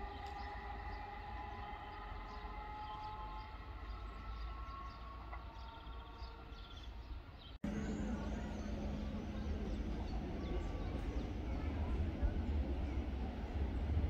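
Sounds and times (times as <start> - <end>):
distant railway sounds: 0.0 - 14.0
electric train approaching: 7.6 - 14.0
faint steady tones: 7.6 - 14.0
steady low hum: 7.6 - 14.0.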